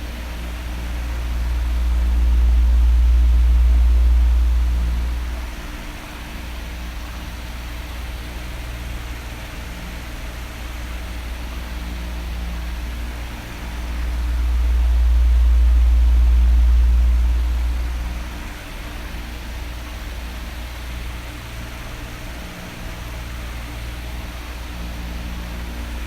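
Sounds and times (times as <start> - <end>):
deep rumble: 0.0 - 8.1, 12.1 - 20.9
electric fan whooshing: 0.0 - 26.0.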